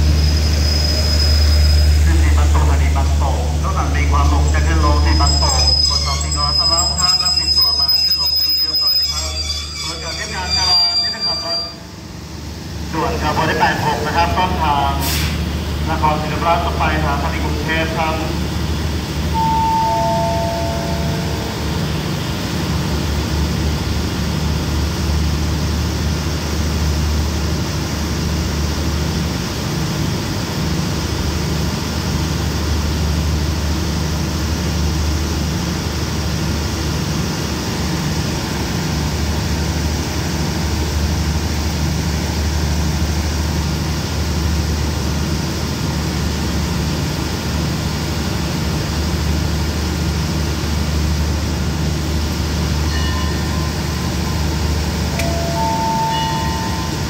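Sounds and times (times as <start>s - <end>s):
train engines humming: 0.0s - 57.0s
descending station chime: 1.2s - 11.9s, 19.3s - 22.1s, 52.8s - 57.0s.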